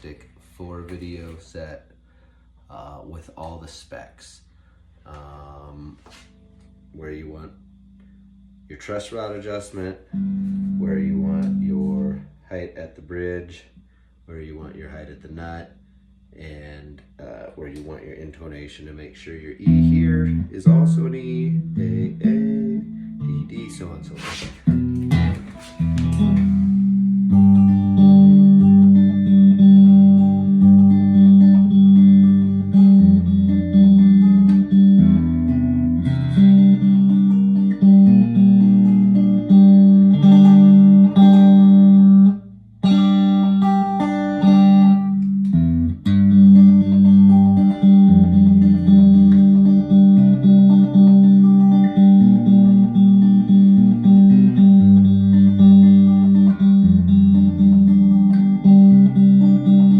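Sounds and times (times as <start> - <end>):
electric guitar playing: 5.1 - 12.8, 19.5 - 59.9.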